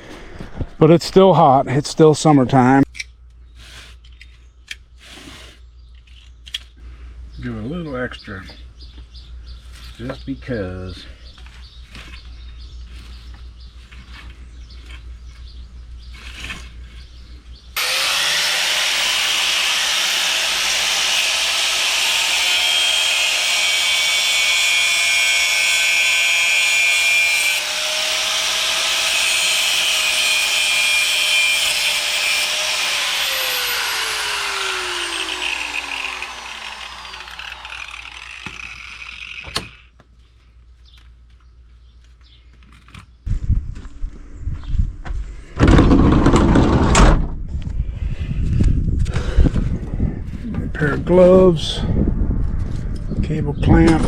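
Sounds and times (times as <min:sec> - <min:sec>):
power tool motor whining: 0:17.8 - 0:39.9.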